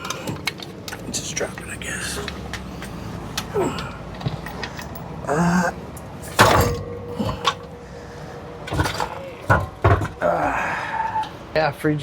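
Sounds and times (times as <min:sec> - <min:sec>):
metal knocks and clanks: 0:06.2 - 0:07.8, 0:08.6 - 0:10.2.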